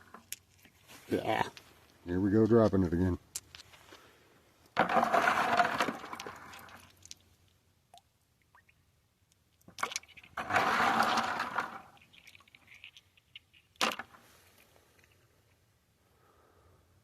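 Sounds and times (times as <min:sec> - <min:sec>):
rocks knocking in a bucket: 0:04.7 - 0:07.2
water sloshing and splashing: 0:04.8 - 0:07.3, 0:09.7 - 0:13.8.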